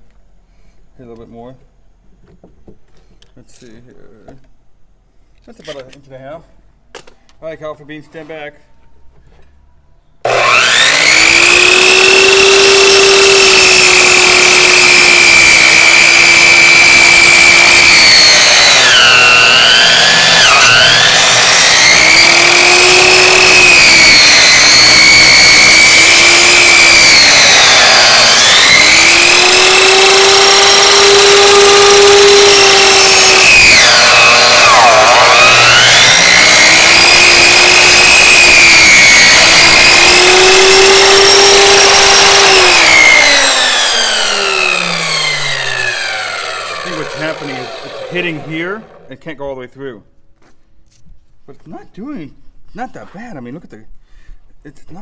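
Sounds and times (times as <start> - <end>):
electric saw cutting meat and bone: 10.3 - 49.1.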